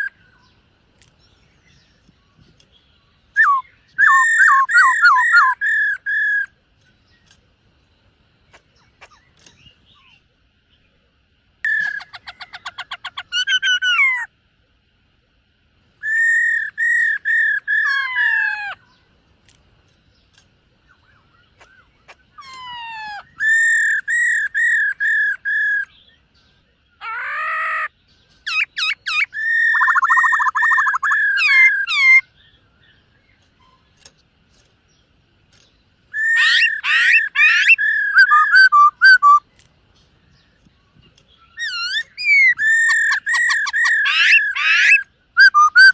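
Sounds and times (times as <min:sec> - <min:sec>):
bird singing whistled phrases: 0:03.3 - 0:06.5, 0:11.7 - 0:12.6, 0:16.0 - 0:18.8, 0:22.4 - 0:26.2, 0:27.0 - 0:32.3, 0:36.1 - 0:39.5, 0:41.4 - 0:45.9.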